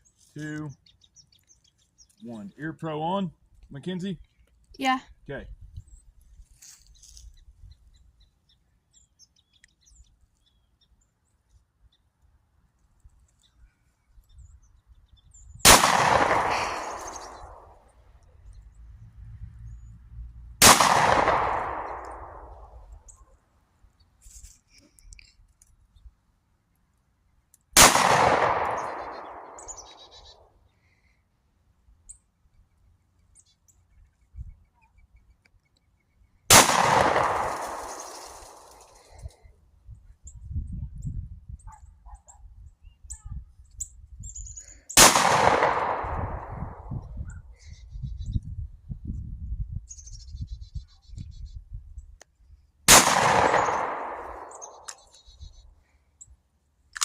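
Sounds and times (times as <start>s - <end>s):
pistol shots: 15.6s - 17.8s, 20.6s - 22.8s, 27.8s - 30.3s, 36.5s - 38.9s, 45.0s - 46.9s, 52.9s - 55.1s.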